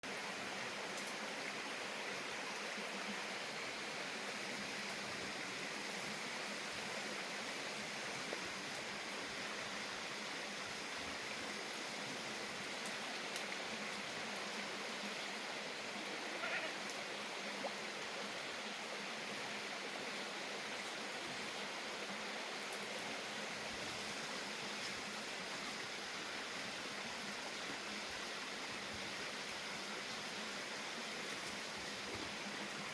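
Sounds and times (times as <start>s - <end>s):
goat bleating: 16.3s - 16.8s.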